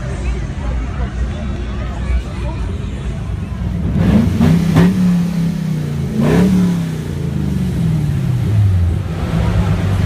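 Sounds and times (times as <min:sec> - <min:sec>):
car engine idling: 0:00.0 - 0:10.0
car engine revving: 0:03.4 - 0:10.0.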